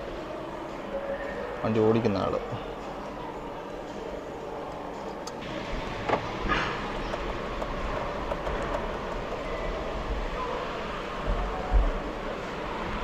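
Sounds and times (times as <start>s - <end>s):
electric car driving rumble: 5.4s - 13.0s.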